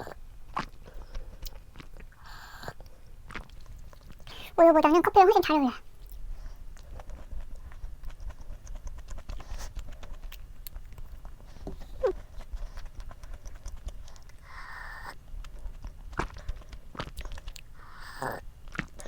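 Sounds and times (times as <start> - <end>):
chewing and crunching frozen snack: 0.0 - 19.0.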